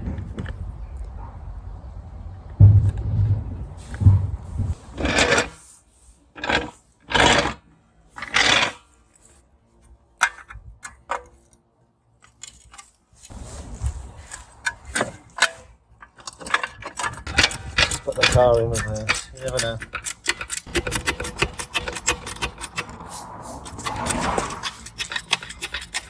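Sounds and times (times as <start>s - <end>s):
car jack strokes: 12.2s - 26.0s
metallic clicks and rattles: 14.3s - 26.0s.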